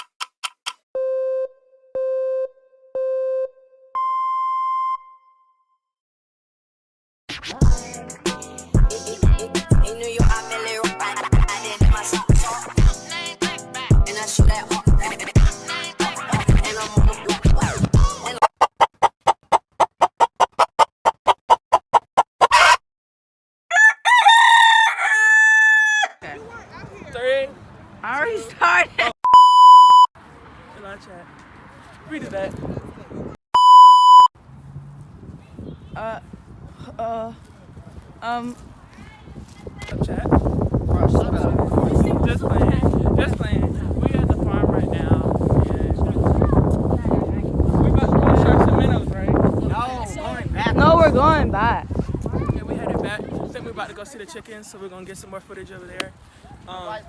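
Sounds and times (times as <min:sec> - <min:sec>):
electronic countdown beeps: 0:01.0 - 0:05.3, 0:29.3 - 0:30.1, 0:33.6 - 0:34.3
fast beat: 0:07.4 - 0:18.4
rooster crowing: 0:23.7 - 0:26.2.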